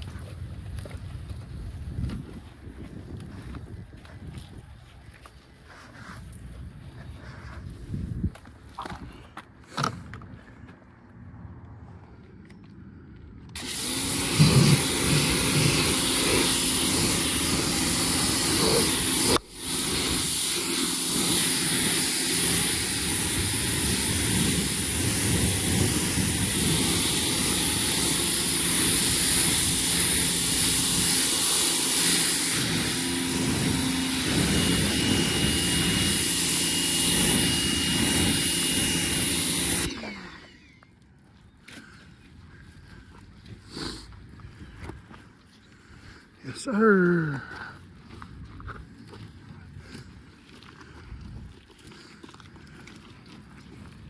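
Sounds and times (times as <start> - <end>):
motor hum: 13.4 - 41.3
loud steady hiss: 13.6 - 39.9.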